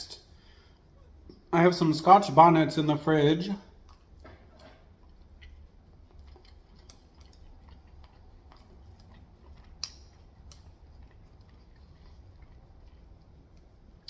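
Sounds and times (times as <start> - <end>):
chewing crunchy food: 3.6 - 14.0.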